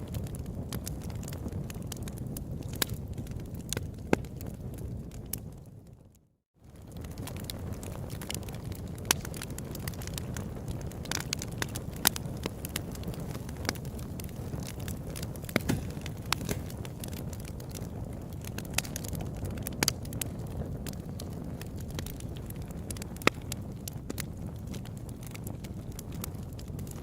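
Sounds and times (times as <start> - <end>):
low rush of flames: 0.0 - 27.0
wood popping and snapping: 11.0 - 17.8.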